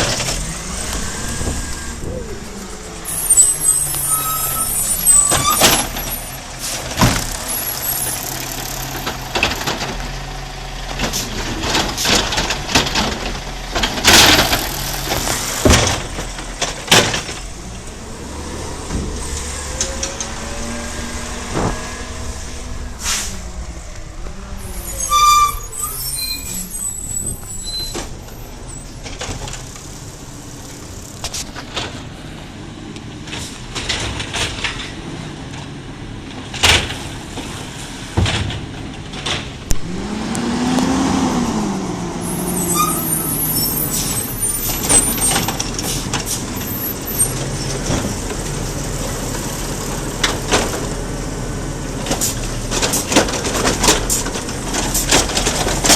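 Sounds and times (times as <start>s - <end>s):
garbage truck engine running: 0.0s - 40.6s, 41.2s - 55.9s
short high squeals: 3.0s - 6.4s, 24.6s - 29.0s, 42.2s - 45.5s
sharp knocks and clanks: 11.0s - 17.5s.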